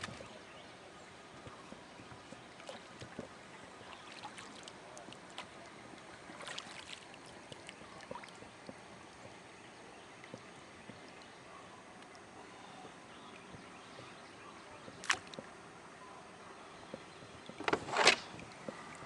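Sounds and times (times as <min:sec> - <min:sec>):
faint water lapping: 0:00.0 - 0:19.0.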